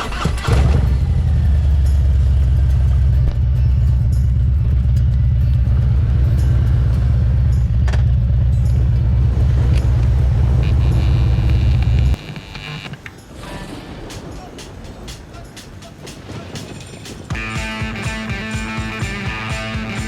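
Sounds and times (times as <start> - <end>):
motorcycle engine running: 0.0 - 12.2, 17.3 - 20.0.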